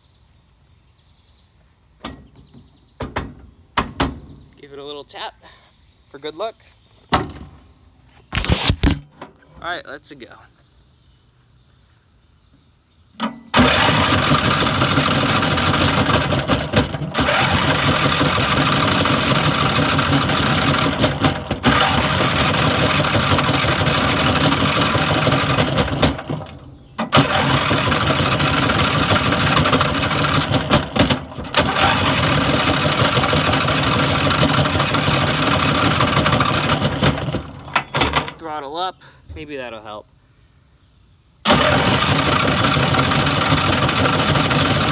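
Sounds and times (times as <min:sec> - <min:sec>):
starter motor cranking engine: 0:08.3 - 0:09.2, 0:13.2 - 0:38.4, 0:41.4 - 0:44.9.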